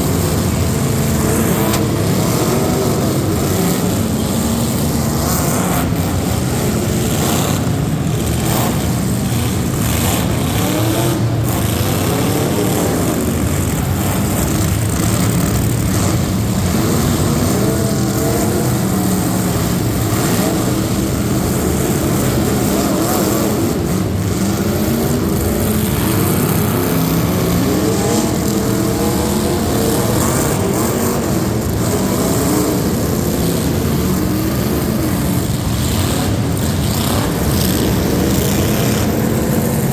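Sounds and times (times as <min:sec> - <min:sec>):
racing truck engines revving: 0:00.0 - 0:39.9.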